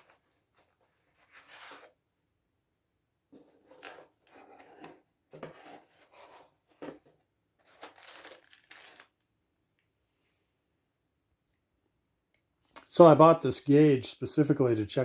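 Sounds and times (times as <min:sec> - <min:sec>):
small metal parts clinking: 0:07.6 - 0:09.2.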